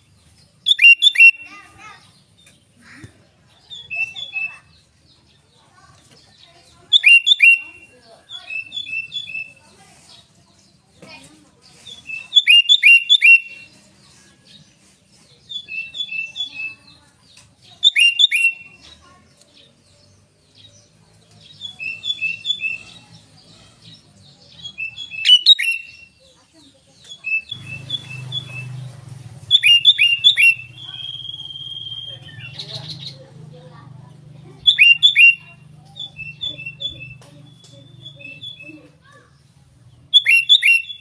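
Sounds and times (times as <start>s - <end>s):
bulbul singing sharp notes: 0.6s - 2.7s, 6.8s - 9.6s, 11.8s - 13.9s, 15.3s - 18.9s, 19.6s - 26.2s, 27.0s - 33.3s, 34.6s - 39.0s, 40.0s - 41.0s.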